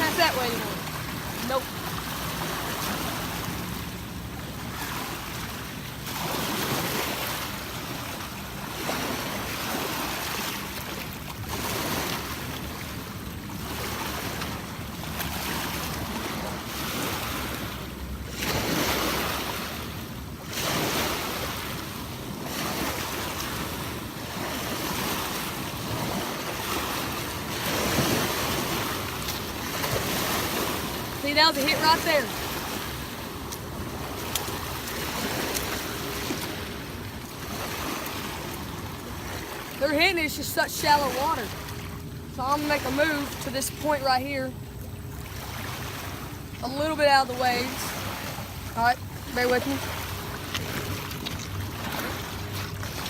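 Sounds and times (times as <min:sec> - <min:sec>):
waves washing against rocky shore: 0:00.0 - 0:44.7, 0:45.3 - 0:53.0.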